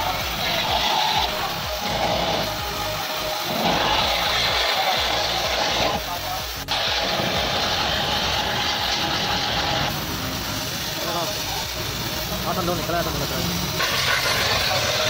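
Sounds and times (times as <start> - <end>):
hissing noise: 0.0 - 15.0.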